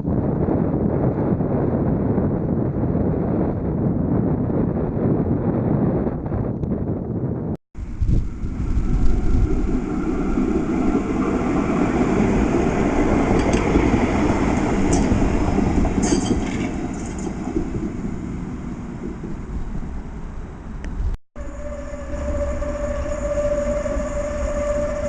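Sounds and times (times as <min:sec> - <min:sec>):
tram rumbling on rails: 0:00.0 - 0:25.0
high-pitched screeches: 0:21.4 - 0:25.0.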